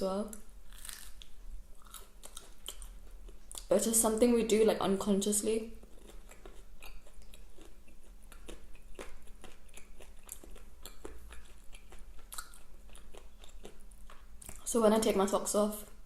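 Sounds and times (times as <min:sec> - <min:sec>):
chewing food: 0:00.7 - 0:03.7, 0:05.8 - 0:14.7.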